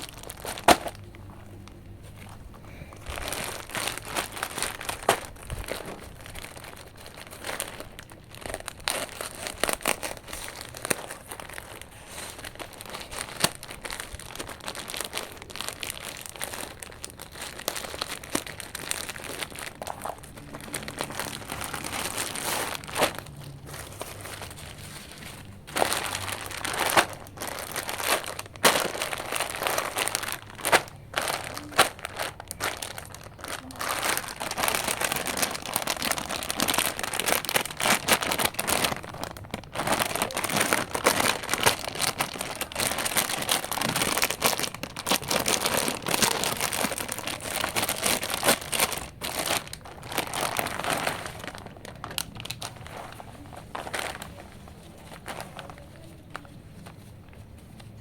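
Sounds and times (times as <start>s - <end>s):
plastic packaging crinkling: 0.0s - 58.0s.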